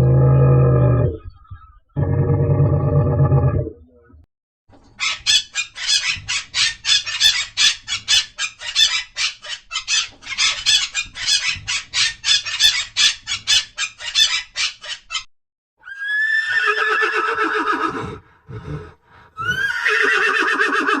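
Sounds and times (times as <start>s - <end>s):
horse whinnying: 15.8s - 21.0s.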